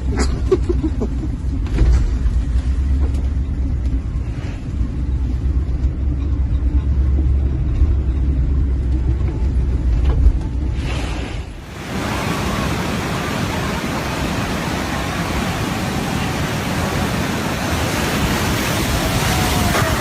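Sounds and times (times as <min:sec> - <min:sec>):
low rumble: 0:00.0 - 0:11.8
stormy sea and wind: 0:00.0 - 0:20.0.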